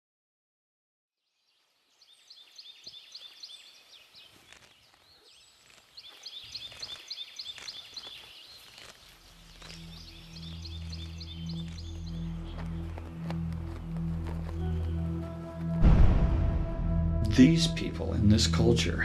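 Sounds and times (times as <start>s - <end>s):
low soft music: 9.3s - 19.0s.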